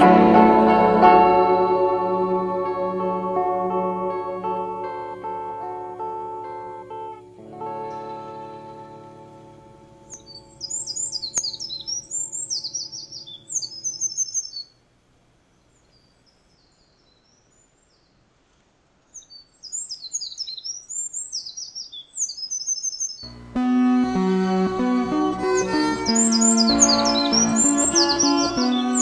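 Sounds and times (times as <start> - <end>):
acoustic guitar notes: 0.0 - 12.3, 23.2 - 29.0
songbird twittering: 10.0 - 14.8, 19.1 - 23.4, 25.4 - 29.0.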